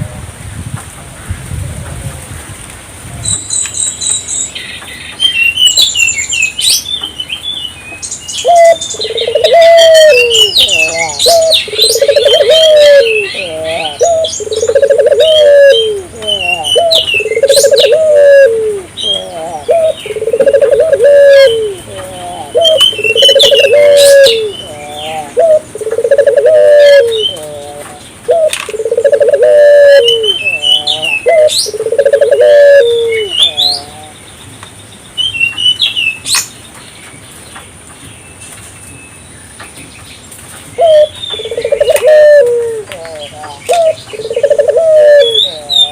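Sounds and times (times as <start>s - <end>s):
small birds chirping: 3.3s - 45.9s
doves cooing: 8.4s - 34.2s, 40.8s - 45.9s.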